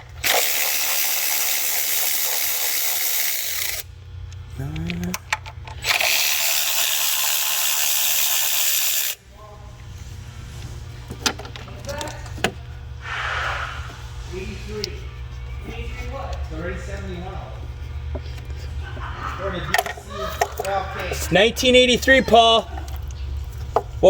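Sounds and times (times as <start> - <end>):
compressed air blow gun hissing: 13.0 - 14.5.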